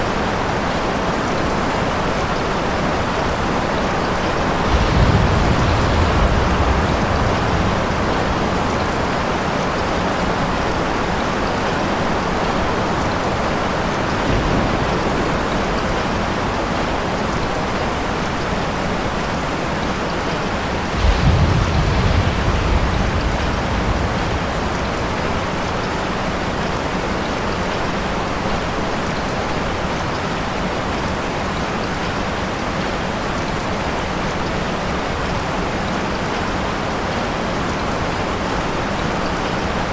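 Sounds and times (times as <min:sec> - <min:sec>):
steady rain falling: 0:00.0 - 0:39.9
thunder rumbling: 0:03.0 - 0:28.1.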